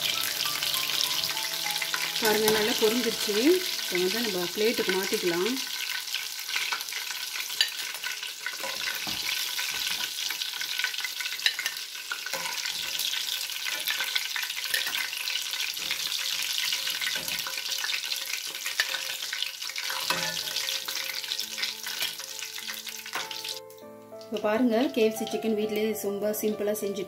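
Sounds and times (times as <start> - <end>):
music: 0.0 - 5.6, 20.1 - 27.0
chicken frying in hot oil: 0.0 - 23.6.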